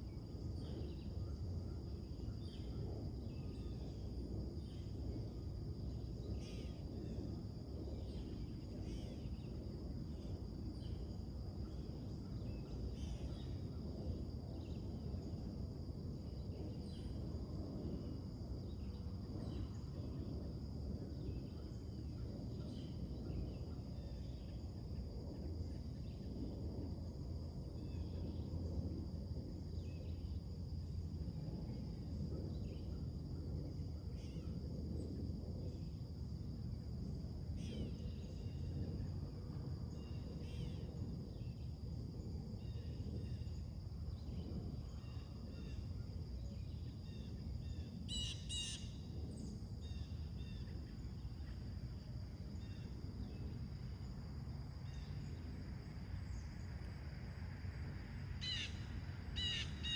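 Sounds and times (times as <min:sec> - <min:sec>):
high insect trill: 0:00.0 - 0:59.9.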